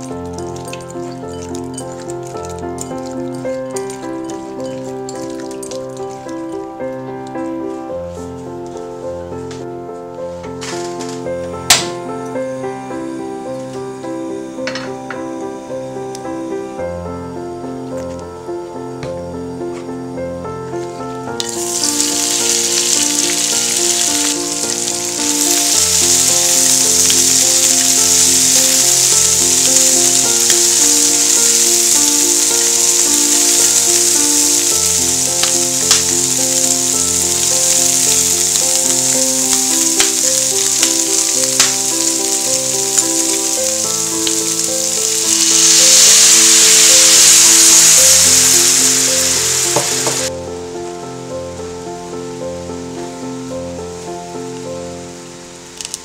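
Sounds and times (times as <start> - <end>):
water poured into pan: 0.0 - 6.6, 21.4 - 50.3
shells frying in hot oil: 0.0 - 6.7, 21.3 - 50.3, 55.7 - 56.0
background music: 0.0 - 56.0.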